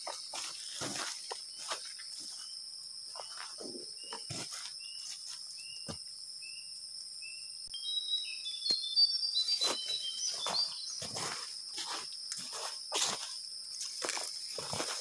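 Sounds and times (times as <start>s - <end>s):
footsteps through undergrowth: 0.0s - 6.0s, 9.4s - 15.0s
songbirds singing: 0.0s - 14.7s
high insect hum: 0.0s - 15.0s.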